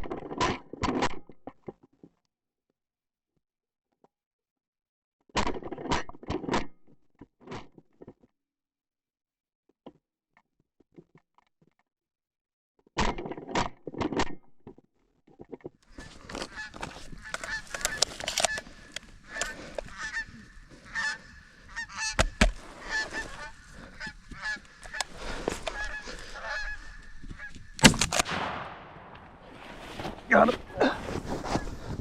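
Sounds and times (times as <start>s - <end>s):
geese honking: 15.9s - 32.0s
shotgun shot: 27.8s - 30.3s.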